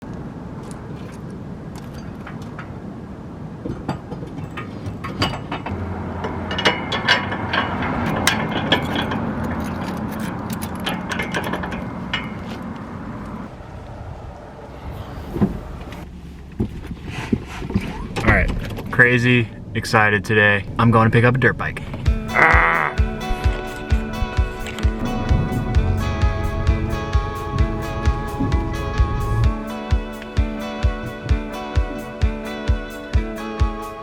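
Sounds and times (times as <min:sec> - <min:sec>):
vehicle engine humming: 0:00.0 - 0:34.0
clicks and rattles of handling: 0:06.5 - 0:12.8.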